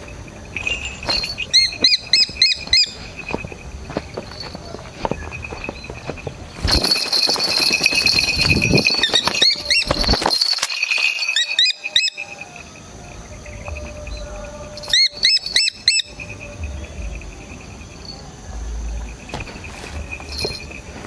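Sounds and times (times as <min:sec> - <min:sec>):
bird sharp calls: 0:00.0 - 0:03.7, 0:11.3 - 0:18.0
pulsing insect chirr: 0:00.0 - 0:21.0.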